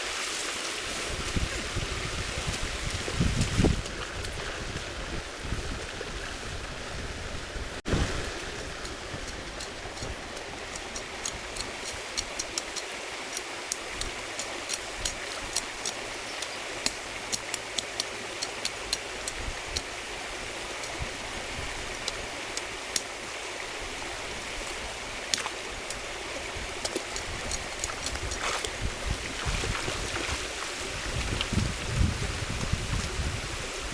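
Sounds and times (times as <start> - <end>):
river water flowing: 3.8 - 32.4.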